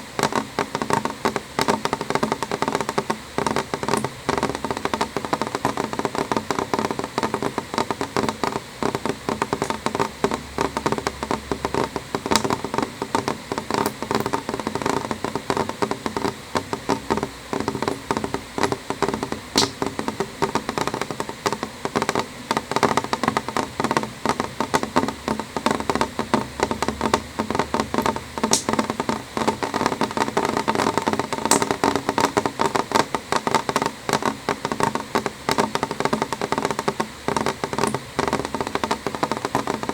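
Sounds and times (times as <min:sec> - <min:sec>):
rain tapping on a window: 0:00.0 - 0:39.9.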